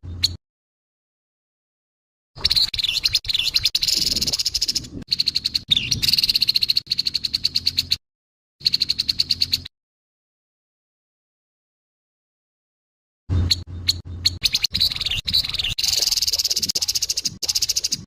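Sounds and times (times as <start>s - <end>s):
bird harsh rattling calls: 2.4s - 8.0s, 8.6s - 9.7s, 13.5s - 18.0s.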